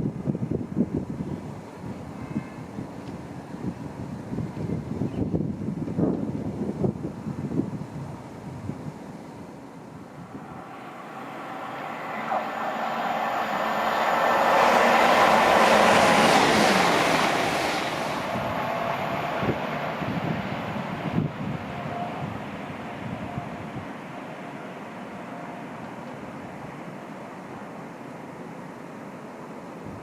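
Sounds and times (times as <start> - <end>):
train passing: 8.9 - 29.8.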